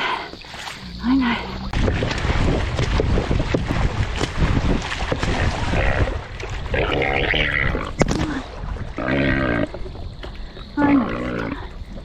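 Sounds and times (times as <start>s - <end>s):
water splashing: 0.0s - 12.0s
wind on microphone: 1.7s - 6.8s.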